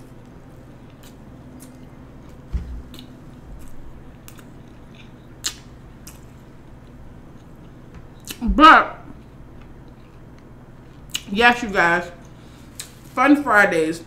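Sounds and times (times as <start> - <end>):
person chewing with mouth closed: 0.8 - 8.4
low thump: 2.5 - 2.9.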